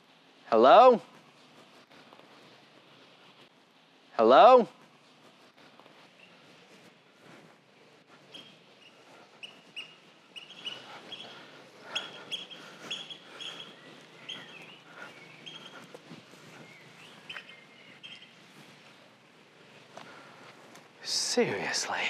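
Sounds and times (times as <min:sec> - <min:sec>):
small birds chirping: 0:04.9 - 0:22.0.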